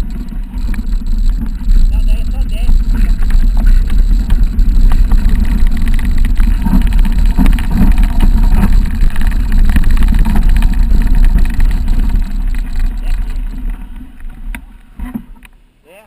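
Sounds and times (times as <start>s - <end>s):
wind rumble on microphone: 0.0s - 15.5s
bike clicks and rattles: 0.0s - 15.6s.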